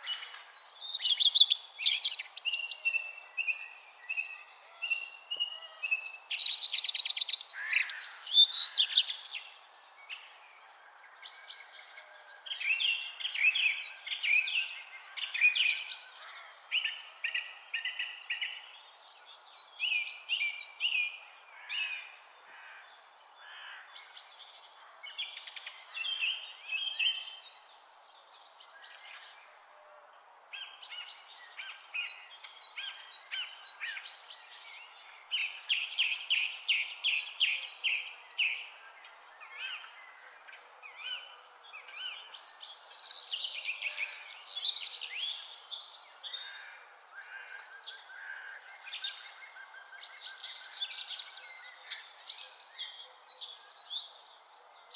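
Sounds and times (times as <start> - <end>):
songbirds singing: 0.0 - 54.9.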